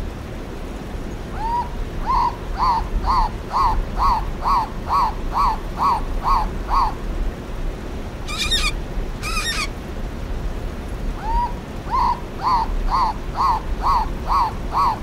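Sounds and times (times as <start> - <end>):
cockatoo screeching: 8.3 - 9.8
cockatoo short arched calls: 8.3 - 9.8.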